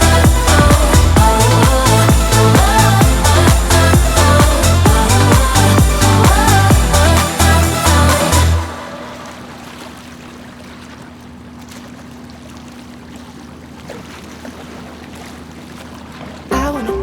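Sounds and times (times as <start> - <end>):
electronic dance music: 0.0 - 9.0, 16.5 - 17.0
boat engine hum: 0.0 - 17.0
water noise: 0.0 - 17.0.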